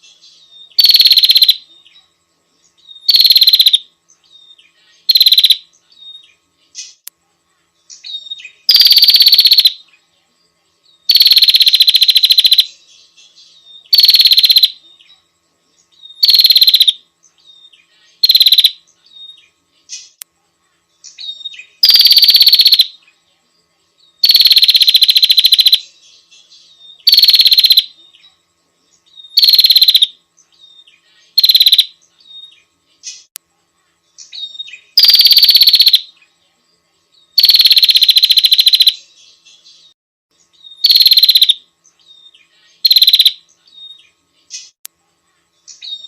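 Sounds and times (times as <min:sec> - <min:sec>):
bird buzzy pulsed trill: 0:00.0 - 0:46.0
faint bird chirps: 0:00.0 - 0:46.0.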